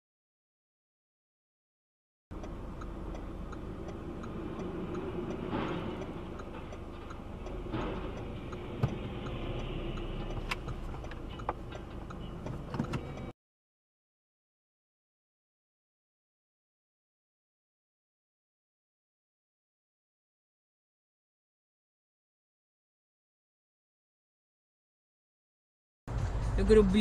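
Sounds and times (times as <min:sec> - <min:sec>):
regular ticking: 0:02.3 - 0:13.3
road and engine noise: 0:02.3 - 0:13.4, 0:26.1 - 0:27.0.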